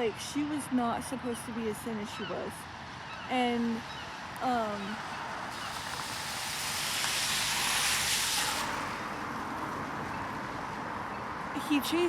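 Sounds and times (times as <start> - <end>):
hiss: 5.5 - 9.0.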